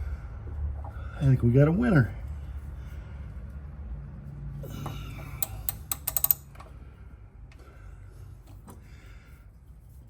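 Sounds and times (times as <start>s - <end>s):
metal clicks of hand tools: 5.3s - 6.7s.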